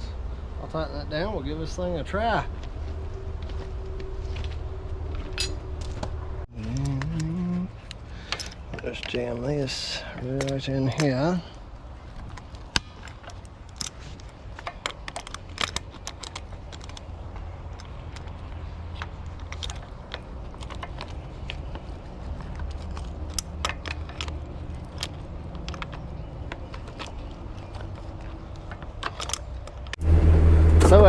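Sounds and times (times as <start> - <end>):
light metallic clinks and rattles: 5.2 - 6.1, 7.8 - 11.5
excavator diesel engine running: 30.0 - 31.0.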